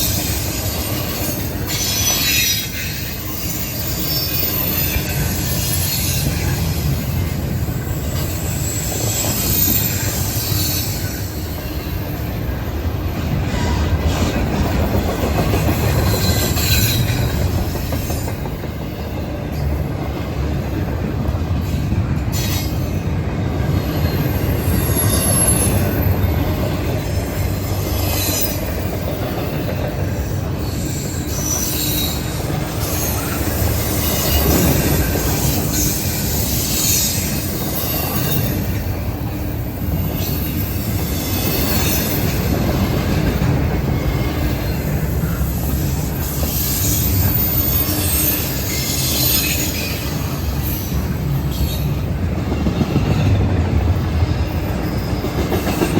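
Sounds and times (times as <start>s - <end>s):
high wheel squeal: 0.0s - 12.4s, 15.9s - 18.0s, 23.6s - 28.9s, 30.2s - 53.3s, 54.5s - 55.9s
freight train wheels rumbling: 0.0s - 55.9s.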